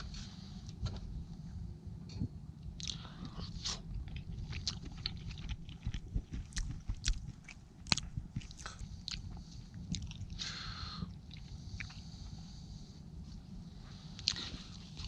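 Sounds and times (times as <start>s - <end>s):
steady low rumble: 0.0s - 15.0s
person chewing food: 2.8s - 12.4s, 14.0s - 15.0s.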